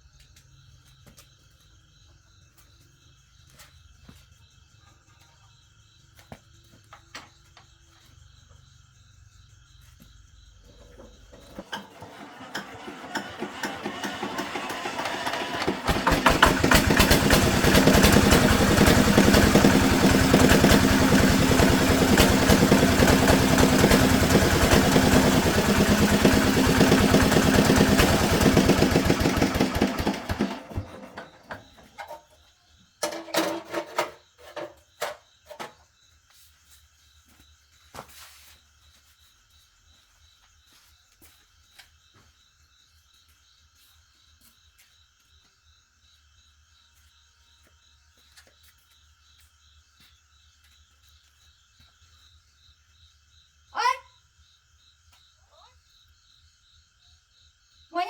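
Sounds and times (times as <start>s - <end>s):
tractor engine running: 11.3s - 32.1s.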